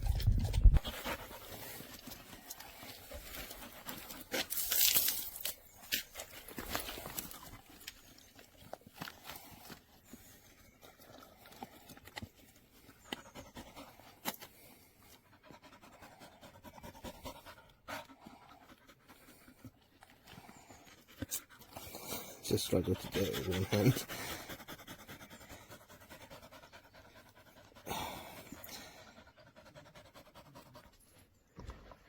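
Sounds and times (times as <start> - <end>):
dog panting: 0.0 - 4.6, 9.0 - 31.3.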